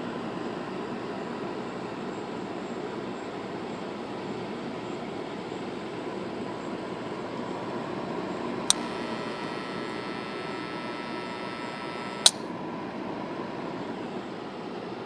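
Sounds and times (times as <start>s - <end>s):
air conditioner fan running: 0.0s - 15.0s
faint steady hum: 0.0s - 15.0s
sharp click: 8.6s - 9.2s, 12.0s - 12.5s.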